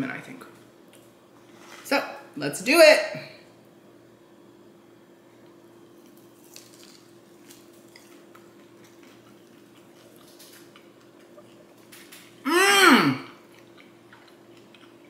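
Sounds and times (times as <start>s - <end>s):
steady low hum: 0.0s - 15.0s
chewing chicken wing: 5.4s - 12.4s, 13.2s - 15.0s.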